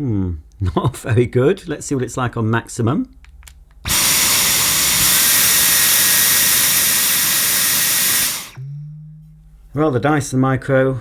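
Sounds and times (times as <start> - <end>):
cordless vacuum running: 3.9 - 8.6.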